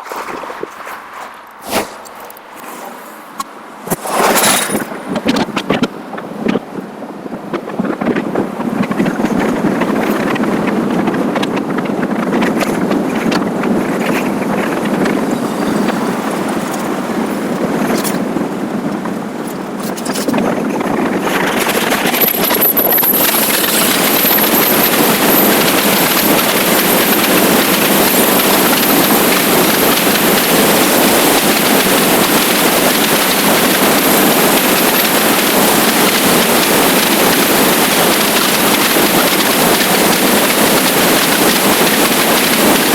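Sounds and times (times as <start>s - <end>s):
motorcycle engine and road noise: 0.0s - 42.9s
wind rushing over microphone: 0.0s - 42.9s
thin high whine: 21.3s - 42.9s.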